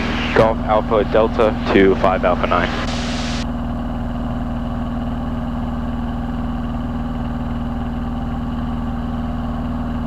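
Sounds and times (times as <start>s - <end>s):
propeller plane engine droning: 0.0s - 10.0s.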